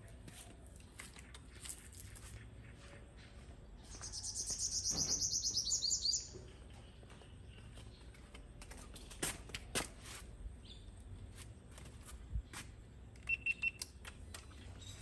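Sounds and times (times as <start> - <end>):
bird singing a fast trill: 3.9 - 6.5.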